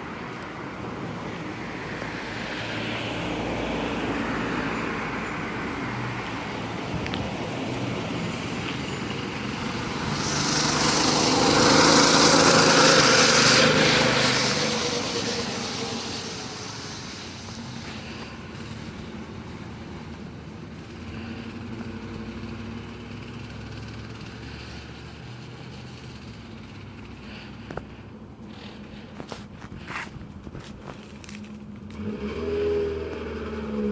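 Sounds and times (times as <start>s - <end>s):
mini bike engine passing: 9.0s - 27.4s, 31.2s - 33.9s.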